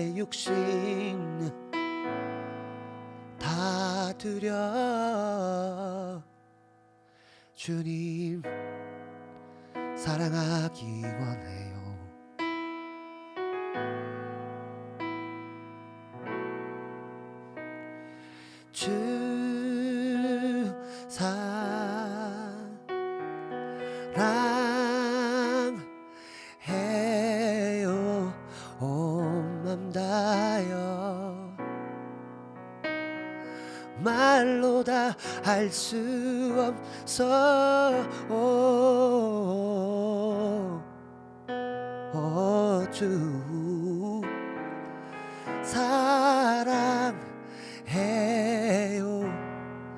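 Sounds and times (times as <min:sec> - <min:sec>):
person singing with vibrato: 0:00.0 - 0:02.5, 0:03.1 - 0:06.4, 0:07.4 - 0:08.7, 0:09.7 - 0:12.3, 0:18.0 - 0:31.7, 0:33.4 - 0:40.9, 0:42.0 - 0:49.5
sustained keyboard chords: 0:00.0 - 0:07.0, 0:07.8 - 0:49.9.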